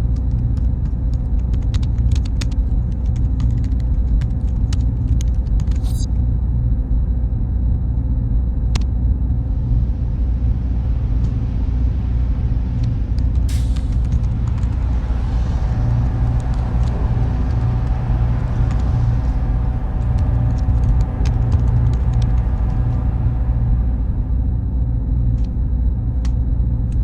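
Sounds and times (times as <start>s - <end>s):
machine fans humming: 9.1s - 27.0s
faint tones: 9.6s - 26.8s.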